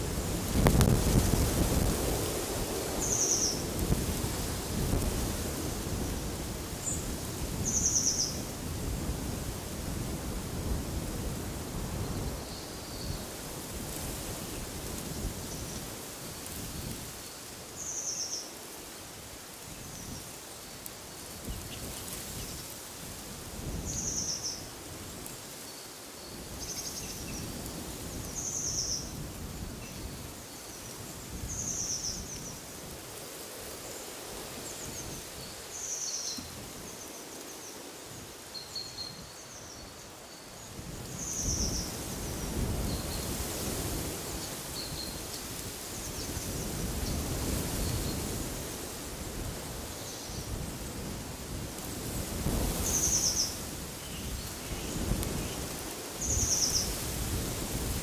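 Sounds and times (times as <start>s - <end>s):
wind gusting: 0.0s - 17.2s.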